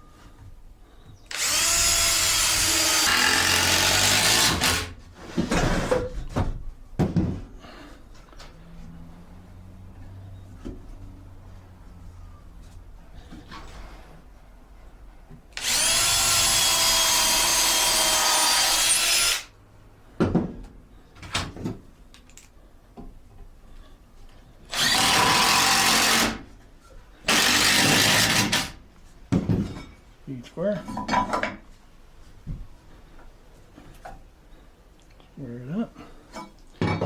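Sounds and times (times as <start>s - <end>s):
power drill into wood: 1.3s - 5.0s, 15.6s - 19.5s, 24.7s - 26.5s, 27.2s - 28.8s
knocks and handling of boards: 5.1s - 7.8s, 20.2s - 21.9s, 29.3s - 30.0s.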